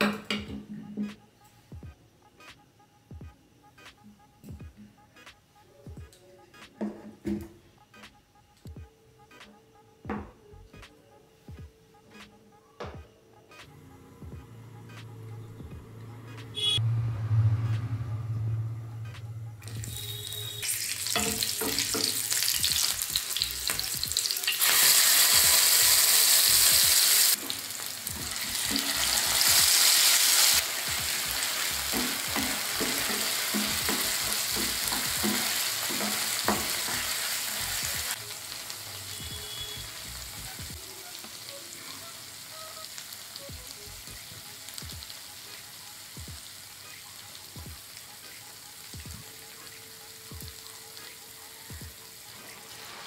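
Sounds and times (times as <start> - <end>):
paste sizzling in hot oil: 19.6 - 40.3.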